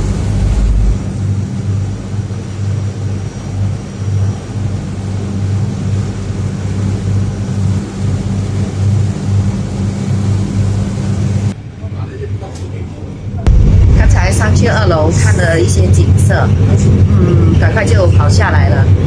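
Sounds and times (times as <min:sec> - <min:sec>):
deep rumble: 0:00.0 - 0:03.7, 0:13.4 - 0:19.0
boat engine humming: 0:00.0 - 0:11.6, 0:13.5 - 0:19.0.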